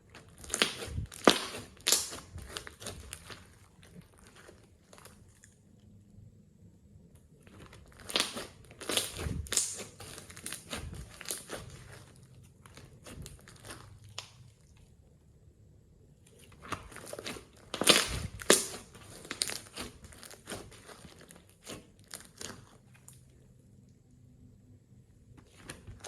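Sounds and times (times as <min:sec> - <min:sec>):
slime crackling when squeezed: 0:00.2 - 0:05.3, 0:07.5 - 0:14.5, 0:16.6 - 0:23.1.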